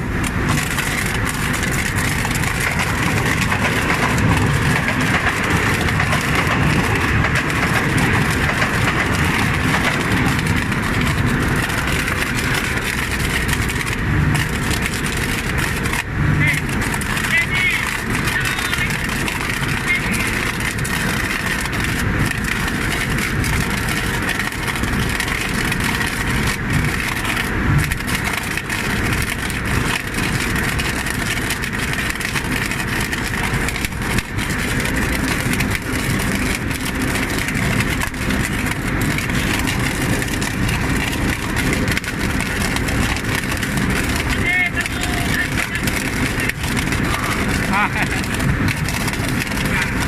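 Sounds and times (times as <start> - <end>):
welding machine engine running: 0.0 - 50.0.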